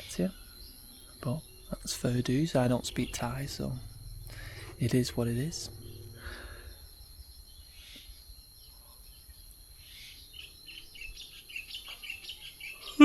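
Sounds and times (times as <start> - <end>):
birds chirping: 0.0 - 13.0
thin steady high tone: 0.0 - 13.0.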